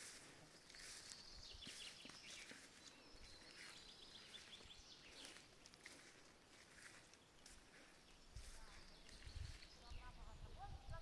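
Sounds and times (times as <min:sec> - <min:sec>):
birds chirping and trilling: 0:00.0 - 0:11.0.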